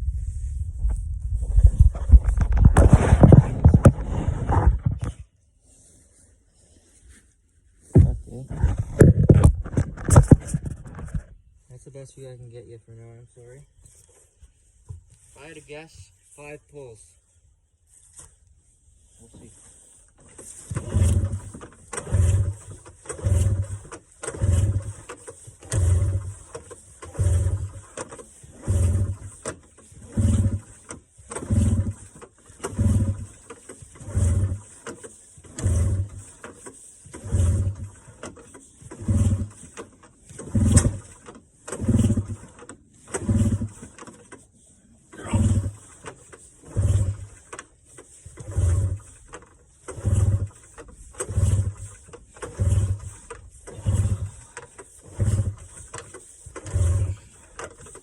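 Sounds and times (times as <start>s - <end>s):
recoil starter pulls: 1.5s - 5.3s, 7.9s - 14.3s, 19.0s - 58.0s
small engine turning over: 20.0s - 44.5s, 45.1s - 58.0s.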